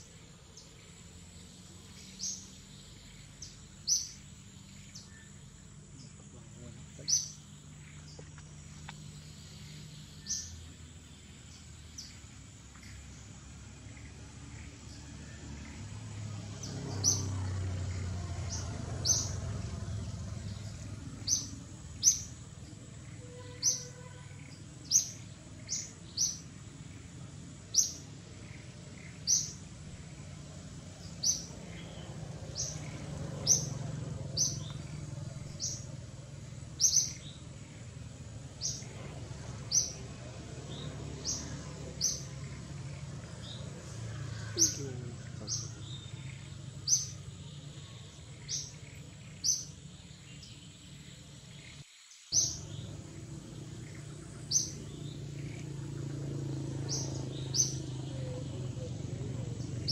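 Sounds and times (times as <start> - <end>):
bird chirping sharply: 23.0 - 26.5
low background rumble: 52.4 - 59.9.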